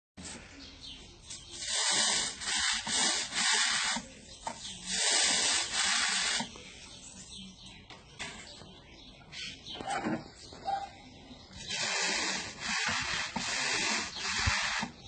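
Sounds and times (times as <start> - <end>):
liquid spray hissing: 1.5 - 4.1, 4.8 - 6.5, 11.7 - 15.0.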